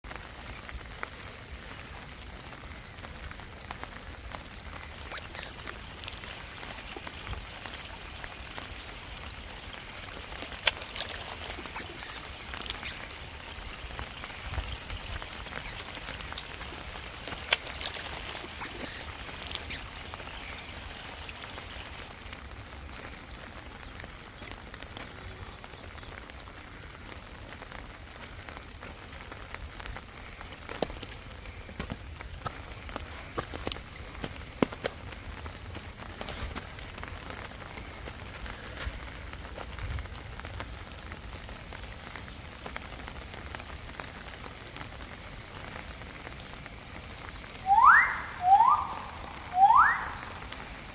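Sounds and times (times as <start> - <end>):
steady rain falling: 0.0 - 50.9
high-pitched bird chirps: 5.1 - 6.2, 11.5 - 13.1, 18.3 - 19.9, 47.7 - 50.5.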